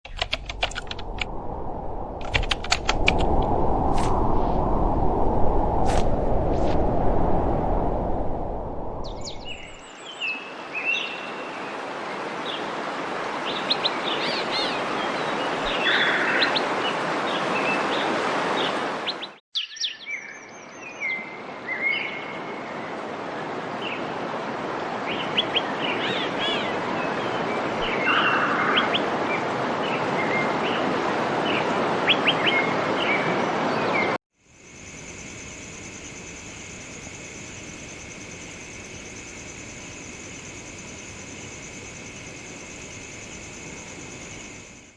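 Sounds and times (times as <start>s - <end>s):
songbirds chirping and trilling: 13.4s - 22.3s, 25.1s - 34.2s
steady hiss: 34.5s - 44.9s.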